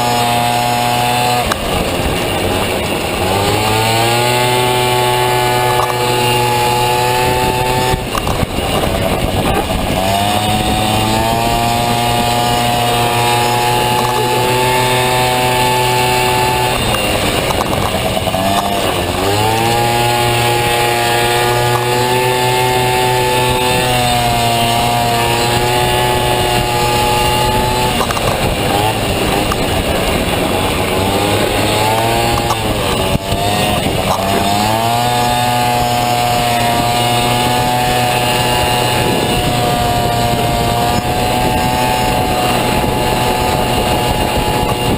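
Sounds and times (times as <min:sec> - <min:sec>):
scooter engine running hard: 0:00.0 - 0:44.9.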